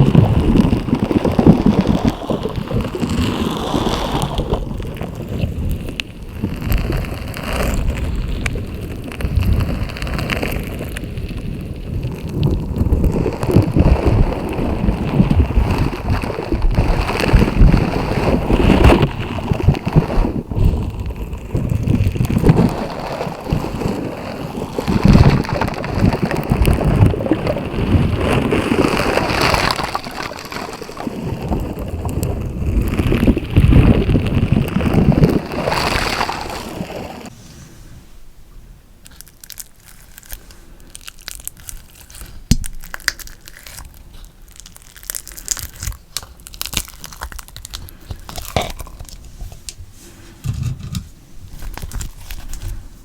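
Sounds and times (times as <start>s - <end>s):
slime squelching by hand: 39.0s - 49.8s.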